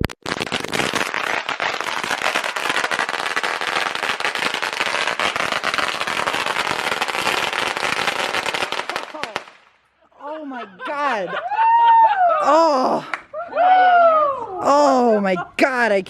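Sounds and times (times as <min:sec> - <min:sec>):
firecrackers popping: 0:00.0 - 0:09.9.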